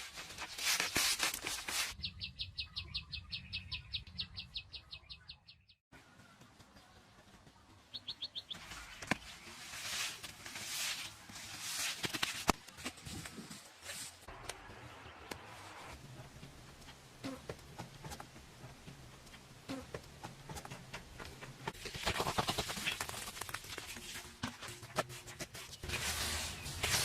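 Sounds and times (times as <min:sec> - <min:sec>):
bird chirping: 0:02.0 - 0:05.8, 0:07.9 - 0:09.0.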